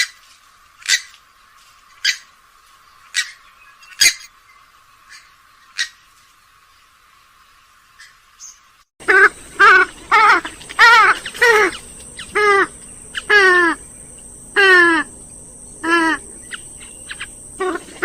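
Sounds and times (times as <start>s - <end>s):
bird nasal calls: 8.0s - 18.0s.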